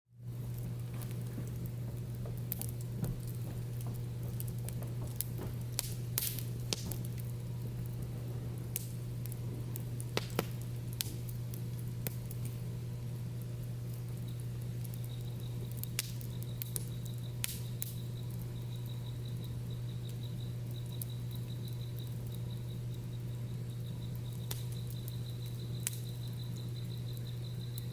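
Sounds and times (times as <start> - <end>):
campfire wood crackling: 0.2 - 27.9
insect high-pitched trill: 15.0 - 27.9.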